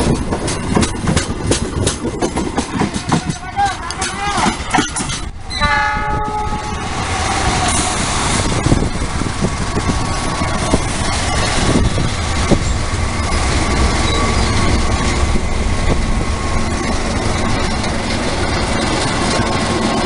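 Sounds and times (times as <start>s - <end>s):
sharp clicks of rails: 0.0s - 5.4s
train wheels rolling over rails: 0.0s - 5.6s, 6.7s - 20.0s.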